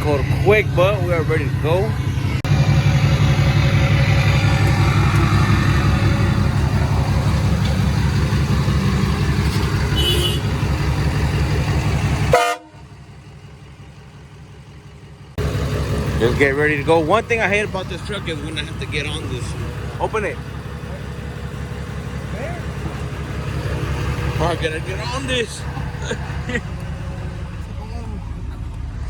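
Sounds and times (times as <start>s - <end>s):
pickup truck engine idling: 0.0s - 29.0s
horn toot: 9.8s - 10.7s, 12.3s - 12.8s.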